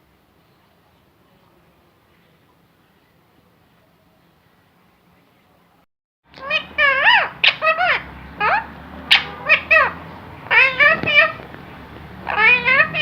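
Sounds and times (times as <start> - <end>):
parrot vocalising: 6.4 - 13.0.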